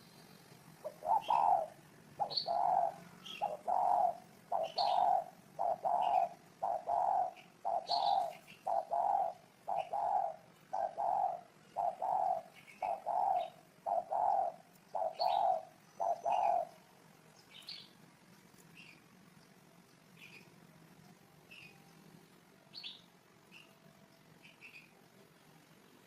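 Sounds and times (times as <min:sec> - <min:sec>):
small birds chirping: 0:00.0 - 0:26.0
dove cooing: 0:00.8 - 0:16.9.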